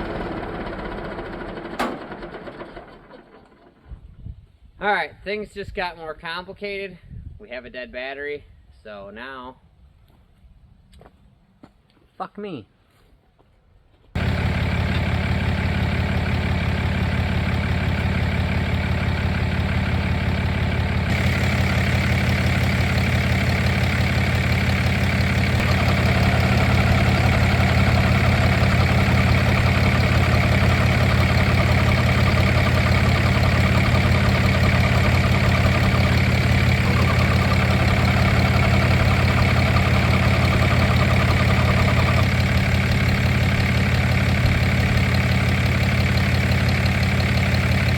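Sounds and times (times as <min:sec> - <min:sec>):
vehicle engine idling: 0:00.0 - 0:04.2, 0:14.2 - 0:47.9.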